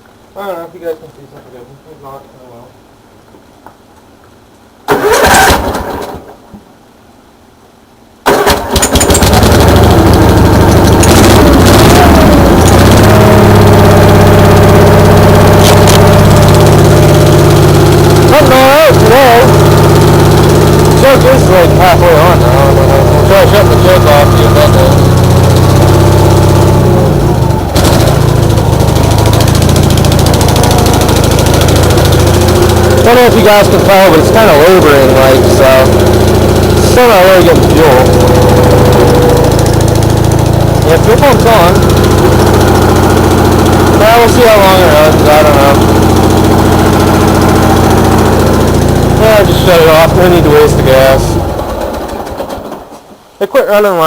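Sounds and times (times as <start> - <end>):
tractor engine starting: 4.9 - 6.4, 8.2 - 53.3.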